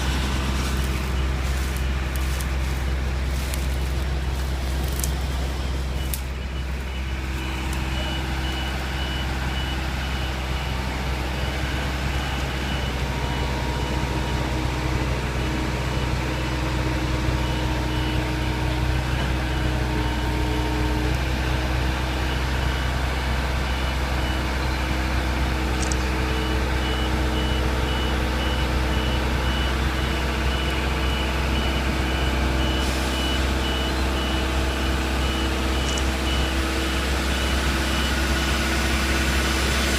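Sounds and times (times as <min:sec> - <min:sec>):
high-pitched warning beeper: 0:00.0 - 0:14.6
tow truck engine running: 0:00.0 - 0:39.9.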